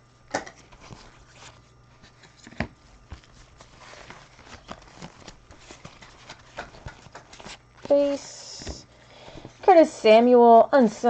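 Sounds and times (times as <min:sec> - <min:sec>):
trading cards clicking and sliding: 0:00.4 - 0:09.6
card tap: 0:06.0 - 0:07.5.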